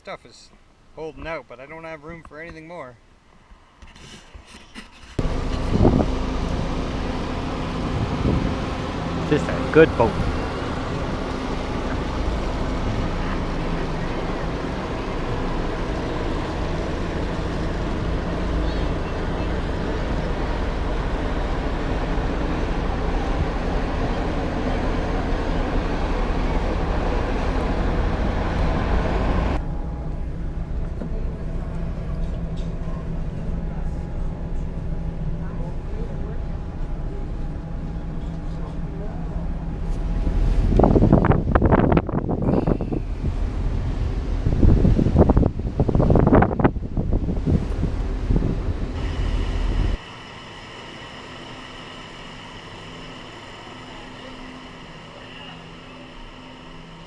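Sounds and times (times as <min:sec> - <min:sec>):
vehicle low hum: 0:04.9 - 0:57.0
wind rushing past vehicle: 0:05.2 - 0:13.2, 0:39.7 - 0:50.0
wind buffeting microphone: 0:05.2 - 0:33.7, 0:35.3 - 0:50.0
faint high whine: 0:05.2 - 0:57.0.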